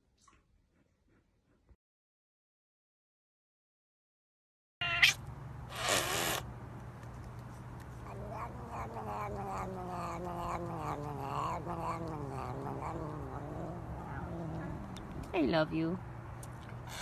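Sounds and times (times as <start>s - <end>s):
cat yowling: 4.8s - 5.2s, 8.0s - 15.3s.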